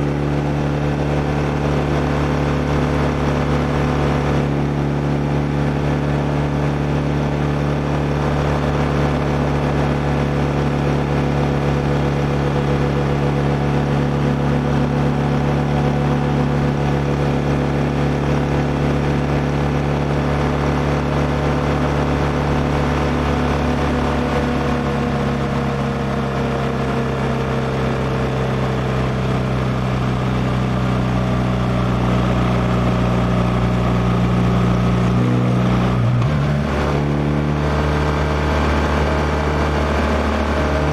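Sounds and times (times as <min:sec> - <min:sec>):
motorcycle engine cruising: 0:28.6 - 0:40.9.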